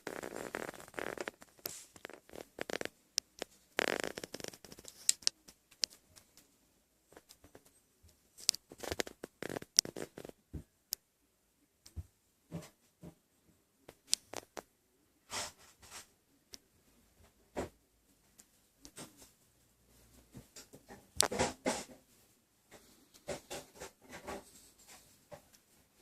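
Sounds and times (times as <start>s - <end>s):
rustling: 0.0s - 10.4s.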